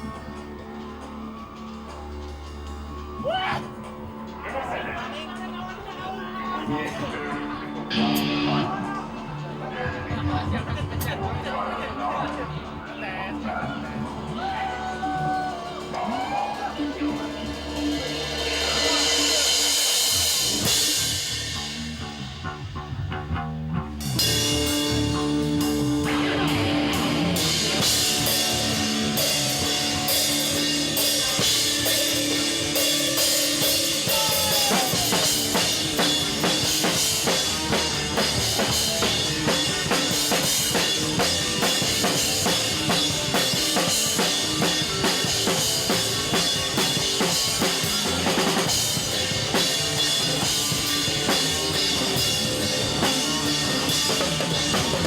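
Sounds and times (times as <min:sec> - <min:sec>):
drum kit fast beat: 0:13.6 - 0:23.2, 0:24.0 - 0:55.0.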